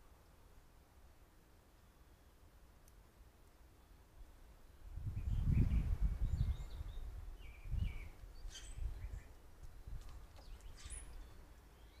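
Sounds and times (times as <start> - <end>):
birds chirping: 4.7 - 12.0.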